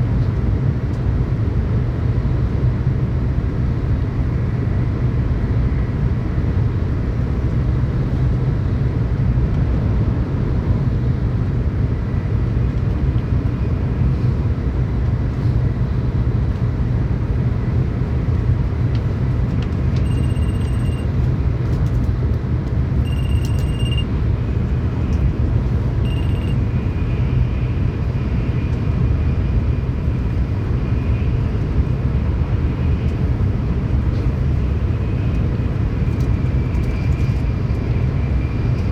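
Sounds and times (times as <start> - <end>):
train rumbling at speed: 0.0 - 38.9
high-pitched tones: 23.1 - 24.1, 26.0 - 26.6.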